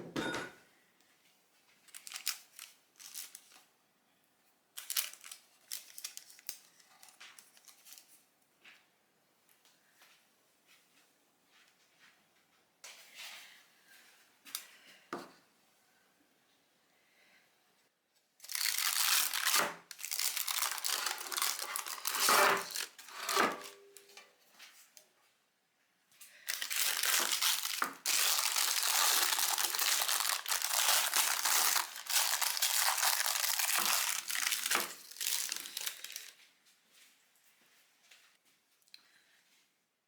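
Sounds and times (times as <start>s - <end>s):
wrapping crinkling: 1.9s - 3.6s, 4.8s - 8.2s, 18.4s - 23.8s, 26.4s - 36.4s.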